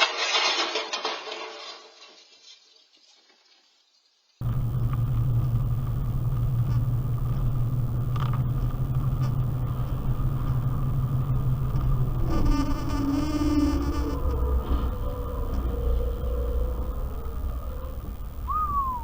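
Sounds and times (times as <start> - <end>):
vehicle rumble and hum: 4.4 - 19.0.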